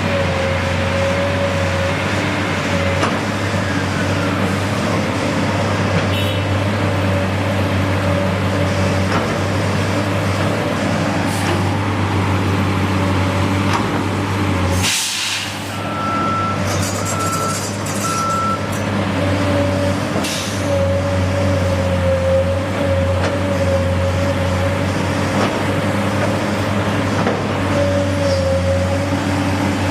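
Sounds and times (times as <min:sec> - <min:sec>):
heavy vehicle engine running: 0:00.0 - 0:29.9
air hissing: 0:14.8 - 0:15.8
short beeps: 0:15.9 - 0:18.7.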